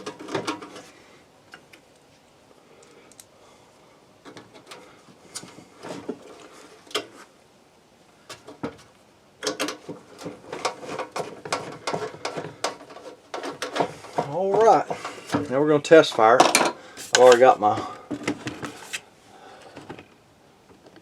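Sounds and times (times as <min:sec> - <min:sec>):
metal parts and tools clattering: 0:16.0 - 0:17.5.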